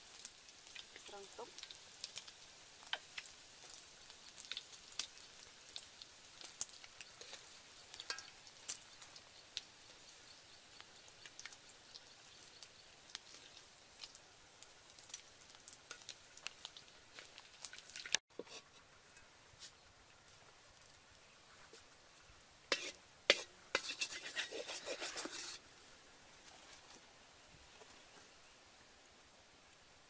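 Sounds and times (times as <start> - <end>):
eggs frying in hot oil: 0.0 - 30.0.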